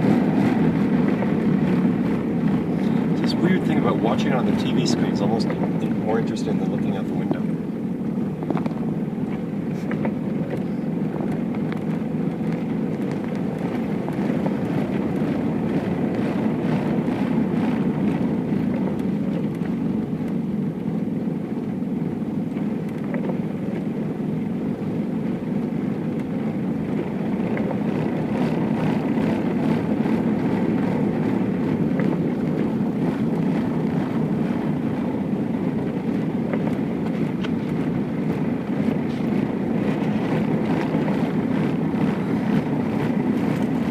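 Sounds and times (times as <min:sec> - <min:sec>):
vehicle rumble inside car: 0:00.0 - 0:43.9.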